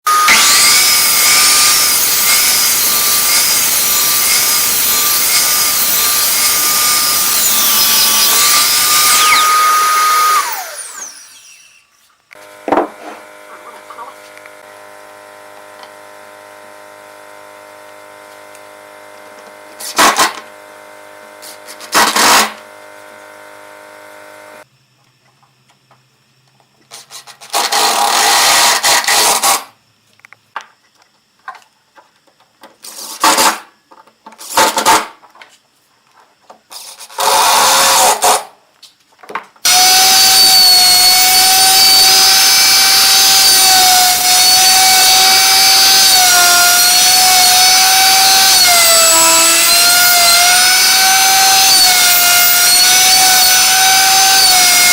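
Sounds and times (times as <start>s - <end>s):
power tool motor whining: 0.1s - 24.6s, 39.6s - 54.9s.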